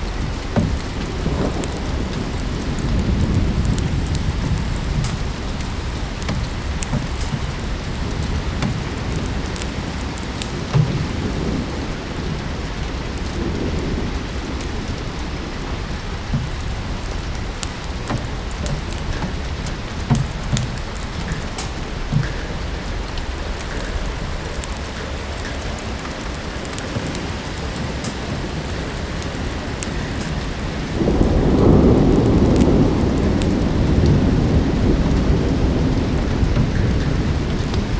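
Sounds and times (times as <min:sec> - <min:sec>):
steady rain: 0:00.0 - 0:37.9
wood fire crackling: 0:00.0 - 0:37.9.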